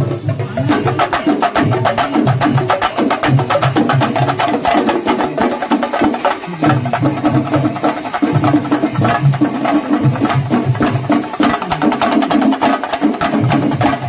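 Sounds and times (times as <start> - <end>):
drums played fast with sticks: 0.0 - 14.0.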